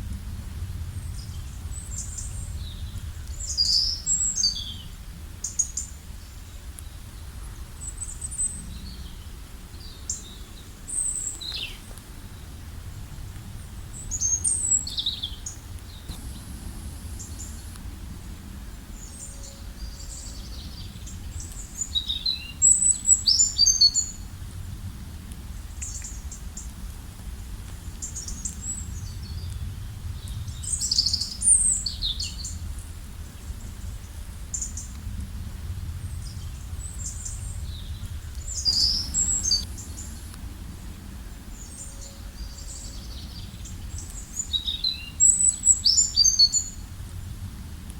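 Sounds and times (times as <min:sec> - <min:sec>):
low rumble: 0:00.0 - 0:05.4, 0:12.6 - 0:21.5, 0:27.0 - 0:43.9
songbirds chirping and trilling: 0:00.8 - 0:24.3, 0:36.1 - 0:46.8.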